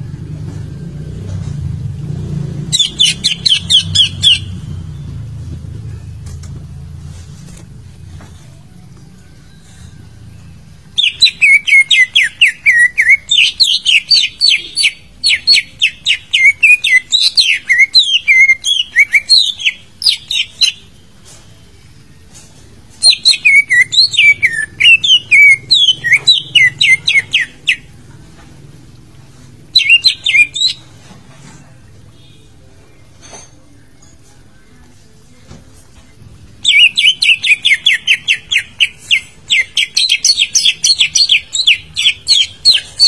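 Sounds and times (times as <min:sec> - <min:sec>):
bird song whistled notes: 0:02.7 - 0:05.4, 0:09.0 - 0:21.4, 0:23.0 - 0:27.9, 0:29.8 - 0:31.1, 0:36.5 - 0:43.0.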